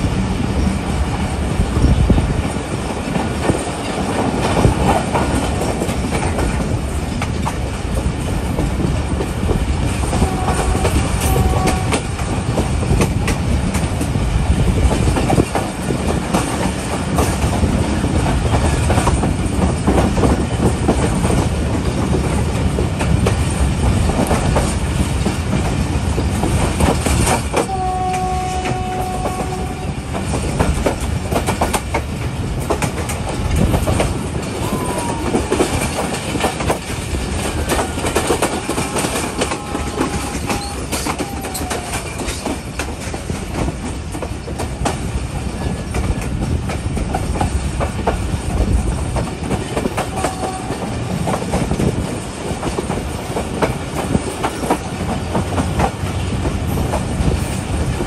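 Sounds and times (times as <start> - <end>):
train wheels clattering over rail joints: 0.0 - 58.0
train horn tone: 10.0 - 12.6, 27.6 - 30.2, 37.5 - 42.5, 50.0 - 51.0.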